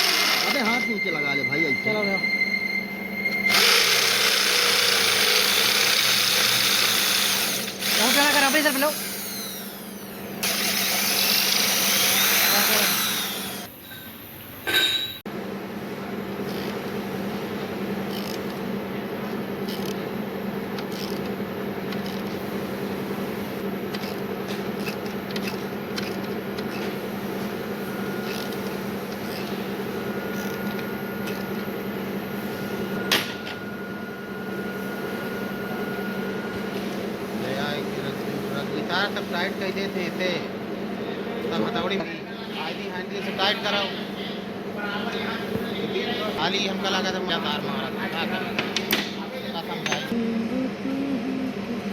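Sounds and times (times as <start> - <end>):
power drill whining under load: 0.0 - 2.1, 3.4 - 13.7
steady machine hum: 0.0 - 24.5, 25.1 - 51.9.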